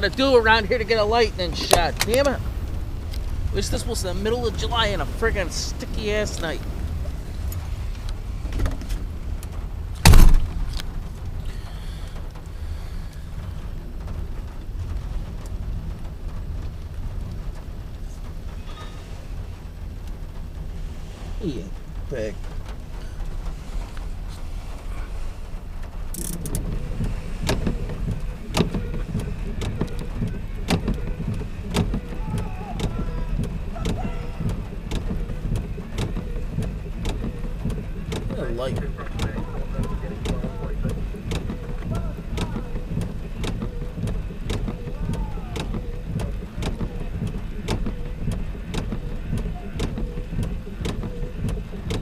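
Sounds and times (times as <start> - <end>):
freight train rumble: 0.0 - 52.0
wheel clacks over rail joints: 25.5 - 52.0.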